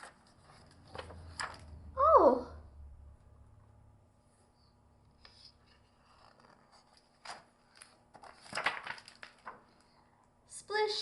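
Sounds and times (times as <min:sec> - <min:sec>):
paper page rustling: 0:00.0 - 0:01.8, 0:05.2 - 0:10.0.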